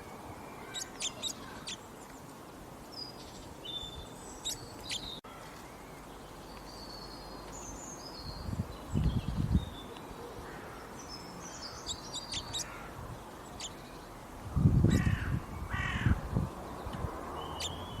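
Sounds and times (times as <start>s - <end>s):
birds chirping and trilling: 0.0s - 18.0s
harsh bird calls: 10.5s - 14.0s.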